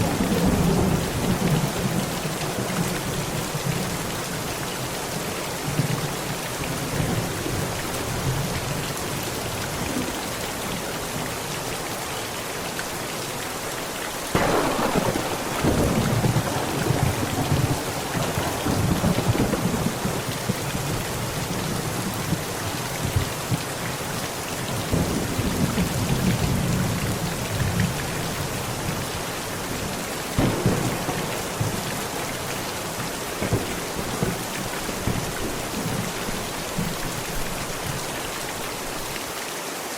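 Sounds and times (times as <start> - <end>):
heavy rain falling: 0.0 - 39.9
thunder: 14.3 - 21.5, 29.8 - 37.0.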